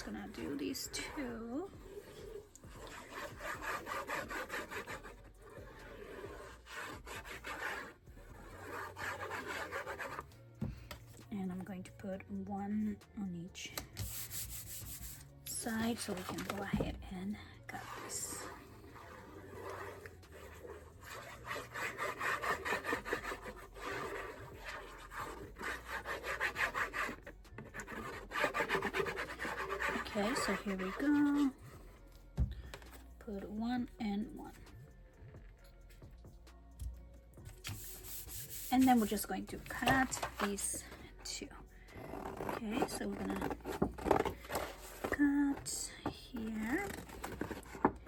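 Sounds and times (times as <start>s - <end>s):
scratching on paper: 0.0s - 10.4s, 14.0s - 17.0s, 17.6s - 31.8s, 37.6s - 48.0s
scissors cutting paper: 42.0s - 45.1s, 46.8s - 48.0s.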